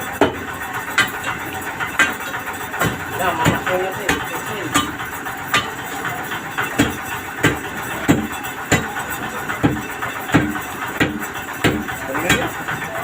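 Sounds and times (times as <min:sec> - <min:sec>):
truck engine running: 0:00.0 - 0:13.0
sharp knocks: 0:01.0 - 0:06.0, 0:06.6 - 0:09.0, 0:09.6 - 0:12.6.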